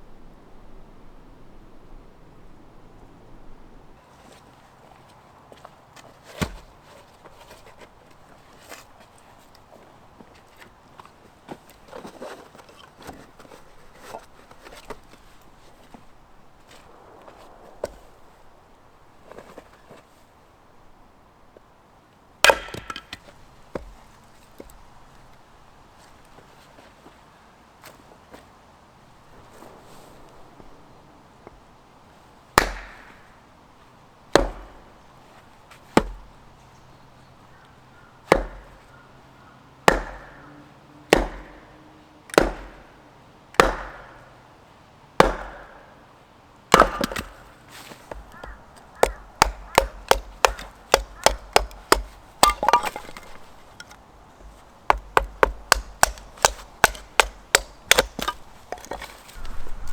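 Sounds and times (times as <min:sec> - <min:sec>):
firewood being chopped: 0:05.5 - 0:16.0, 0:22.4 - 0:25.3, 0:32.5 - 0:33.4, 0:34.3 - 0:36.4, 0:38.2 - 0:39.0, 0:39.8 - 0:40.5, 0:41.1 - 0:44.4, 0:45.2 - 0:46.0, 0:46.7 - 0:59.9
light strikes on wood: 0:22.5 - 0:24.0, 0:39.9 - 0:40.5, 0:41.1 - 0:42.9, 0:43.6 - 0:44.2, 0:46.7 - 0:59.5.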